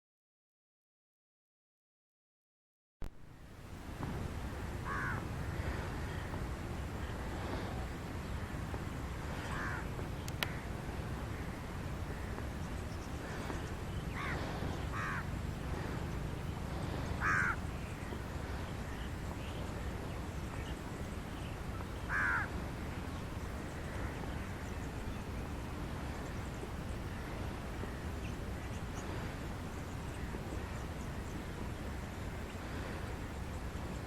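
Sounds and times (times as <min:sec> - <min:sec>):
birds calling harshly: 0:04.7 - 0:06.4, 0:08.3 - 0:25.5.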